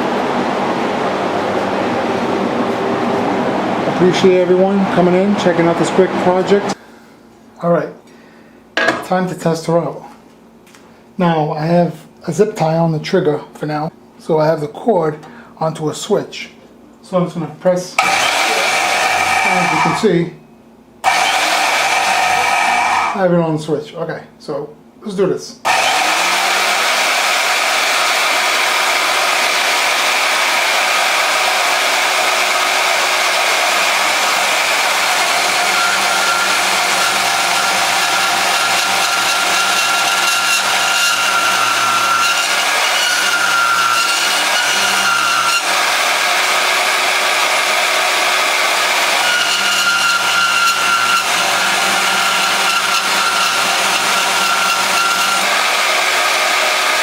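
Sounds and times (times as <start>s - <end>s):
high whine: 0.0s - 6.8s
band saw cutting steel: 18.0s - 20.2s, 21.0s - 23.2s, 25.7s - 57.0s.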